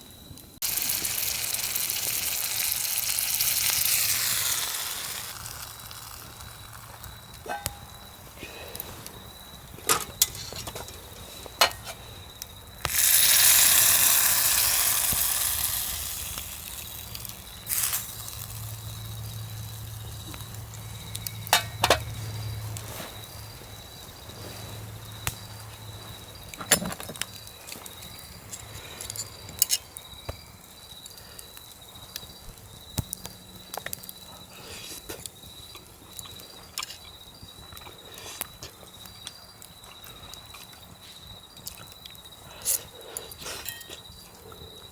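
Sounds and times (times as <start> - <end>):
food sizzling in hot pan: 0.6 - 8.0, 12.8 - 22.0
utensils clinking on cookware: 7.4 - 8.0, 9.8 - 12.0, 21.5 - 22.2, 42.6 - 44.0.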